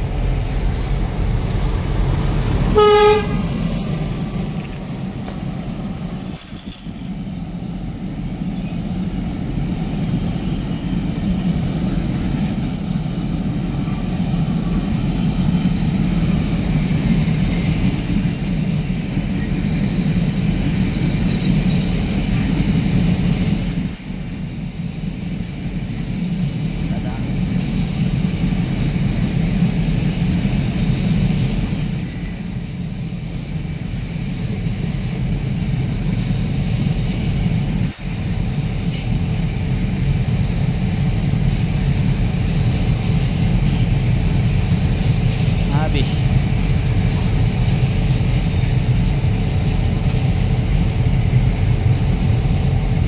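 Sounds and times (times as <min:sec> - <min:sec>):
locomotive engines rumbling: 0:00.0 - 0:53.0
diesel locomotive horn blast: 0:02.7 - 0:03.7.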